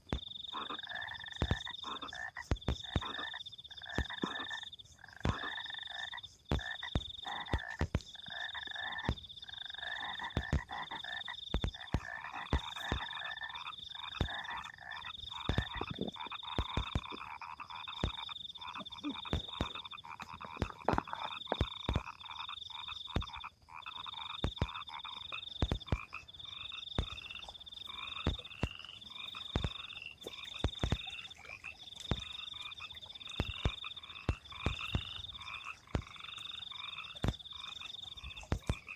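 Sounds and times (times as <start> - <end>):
frogs croaking: 0.0 - 38.9
high pulsing frog trill: 0.0 - 38.9
sharp clicks and knocks: 10.2 - 13.2, 15.4 - 17.4, 25.5 - 26.2.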